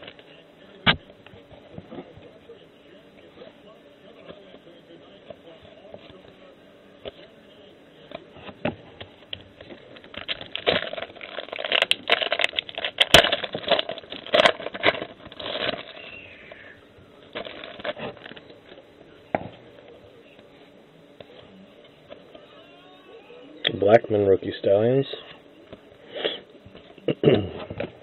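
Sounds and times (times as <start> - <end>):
card wrappers crinkling: 9.6 - 18.6.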